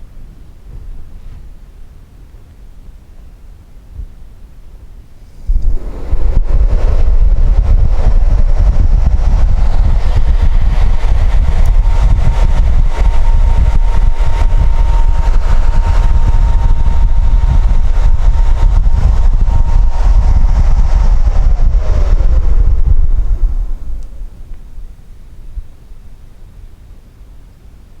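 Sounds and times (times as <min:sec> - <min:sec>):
heater blower motor running: 0:00.0 - 0:27.3
faint steady whine: 0:00.0 - 0:28.0
rush of air: 0:05.1 - 0:26.2.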